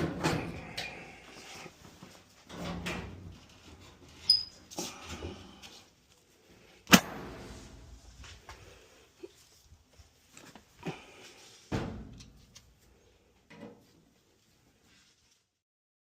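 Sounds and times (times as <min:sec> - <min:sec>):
sharp snap: 0:06.9 - 0:07.4.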